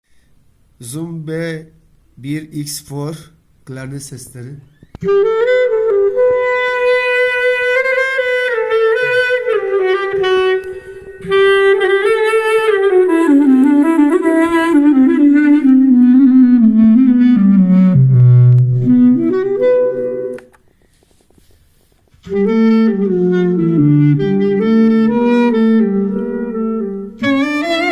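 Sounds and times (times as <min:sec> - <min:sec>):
clarinet-like solo melody: 0:04.7 - 0:20.8, 0:22.2 - 0:27.9.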